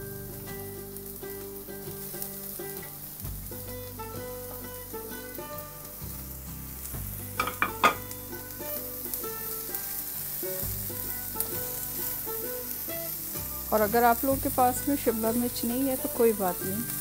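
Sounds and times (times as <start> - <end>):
vegetables sizzling in oil: 0.0 - 17.0
spatula knocking against pan: 7.4 - 8.1.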